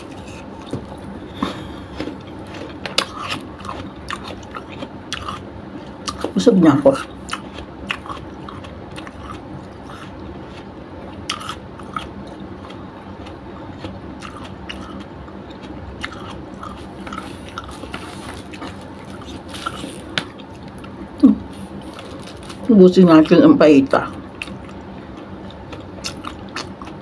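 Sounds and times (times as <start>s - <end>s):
person chewing food: 0.0s - 22.7s, 24.1s - 27.0s.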